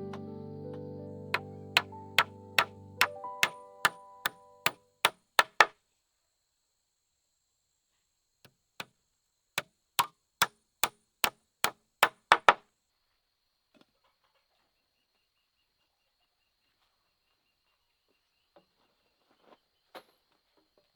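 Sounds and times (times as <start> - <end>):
hand tool knocking: 1.4 - 4.8.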